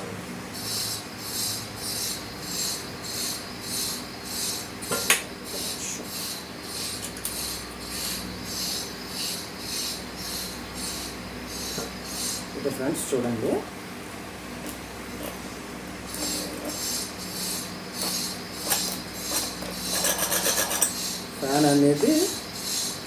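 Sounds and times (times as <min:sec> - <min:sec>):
ceiling fan motor hum: 0:00.0 - 0:23.0.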